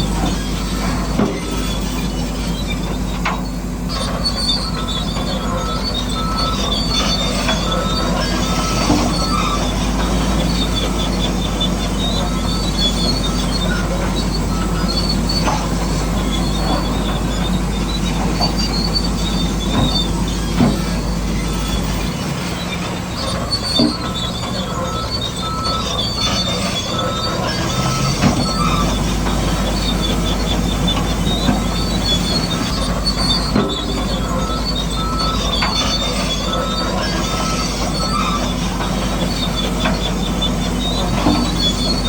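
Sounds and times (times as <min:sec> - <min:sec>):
electric motors whining: 0:00.0 - 0:42.0
metal tracks clattering and squeaking: 0:00.0 - 0:42.0.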